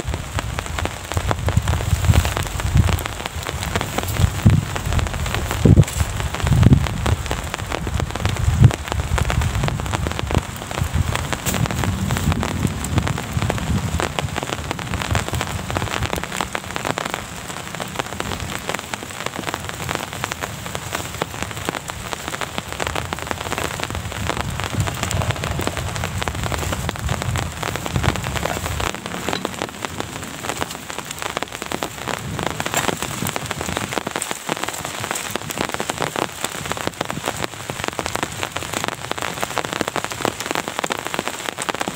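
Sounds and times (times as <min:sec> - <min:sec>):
rain drops pattering: 0:00.0 - 0:41.9
low rumble: 0:00.5 - 0:34.1.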